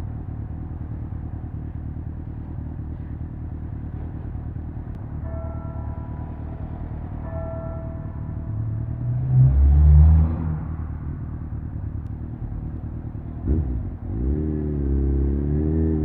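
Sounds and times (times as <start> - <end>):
motorcycle engine idling: 0.0 - 8.8, 11.1 - 14.1.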